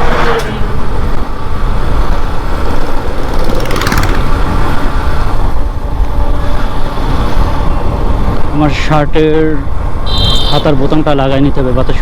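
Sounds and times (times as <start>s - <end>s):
wind rumbling on microphone: 0.0s - 12.0s
motorcycle engine running: 2.6s - 5.2s.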